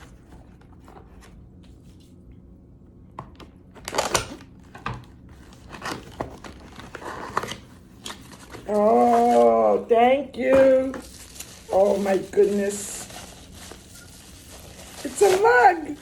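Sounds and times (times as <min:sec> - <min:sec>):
paper packaging tearing and crinkling: 0:03.8 - 0:04.6, 0:05.4 - 0:09.8, 0:10.7 - 0:16.0.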